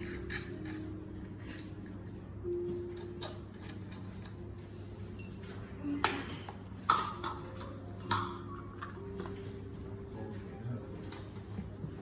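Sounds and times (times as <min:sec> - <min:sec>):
metal parts clinking: 0:06.4 - 0:09.5.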